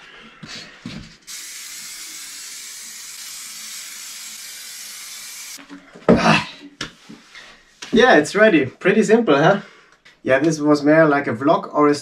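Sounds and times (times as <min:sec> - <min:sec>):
spray paint can hissing: 0:01.3 - 0:05.6.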